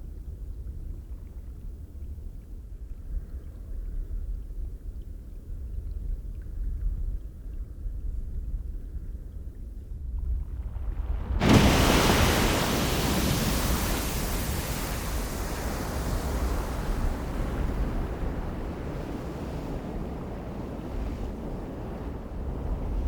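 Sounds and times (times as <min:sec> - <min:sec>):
wind rumble on microphone: 0:00.0 - 0:23.0
geyser erupting: 0:10.2 - 0:22.8.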